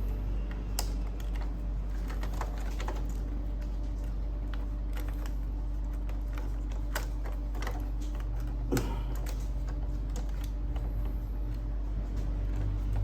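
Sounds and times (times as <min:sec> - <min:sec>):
plastic parts clicking and tapping: 0:00.4 - 0:13.0.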